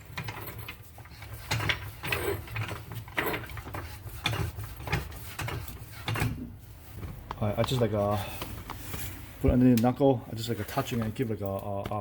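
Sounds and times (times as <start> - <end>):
hydraulic jack clicking and knocking: 0.0 - 6.5.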